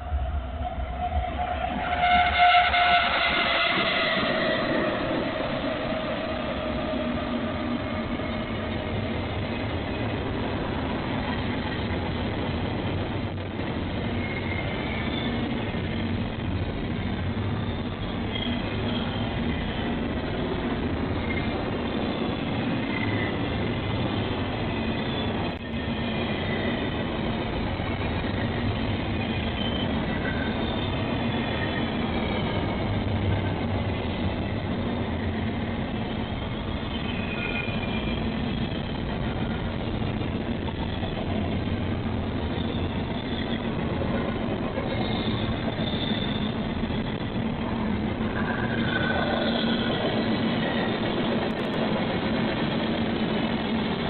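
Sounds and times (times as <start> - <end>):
freight train rumbling past: 0.0 - 54.0
wheel squeals: 29.2 - 32.6, 44.8 - 47.2.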